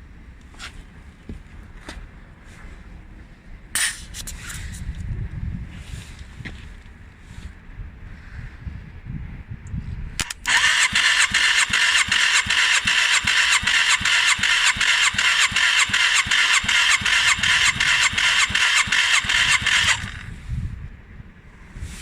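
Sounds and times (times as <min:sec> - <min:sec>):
motorcycle starter cranking: 0:10.2 - 0:20.3.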